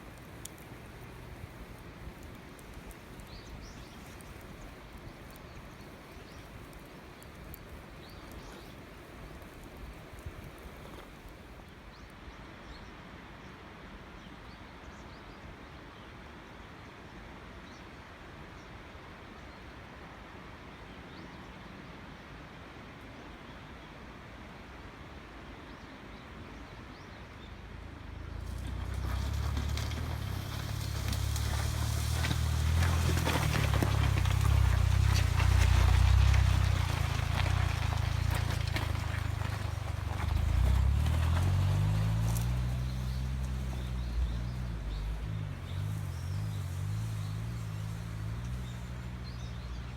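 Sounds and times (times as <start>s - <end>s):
vehicle engine rumbling: 0.0s - 11.5s, 27.6s - 49.9s.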